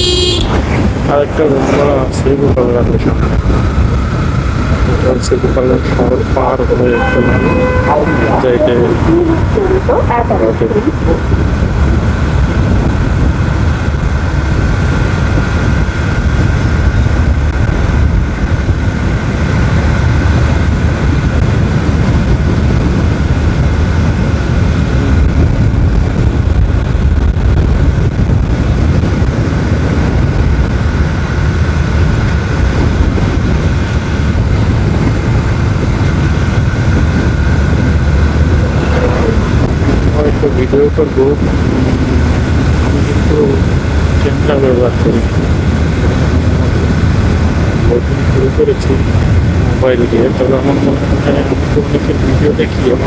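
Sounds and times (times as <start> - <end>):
wind rushing over microphone: 0.0 - 53.0
thin steady whine: 30.4 - 53.0.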